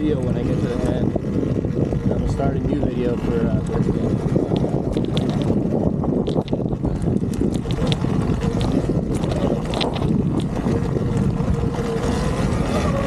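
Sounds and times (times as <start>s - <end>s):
electric dirt bike trail noise: 0.0s - 13.0s
wind rumbling on microphone: 0.0s - 13.0s
small clicks and ticks from stones: 0.1s - 1.0s, 3.6s - 12.0s.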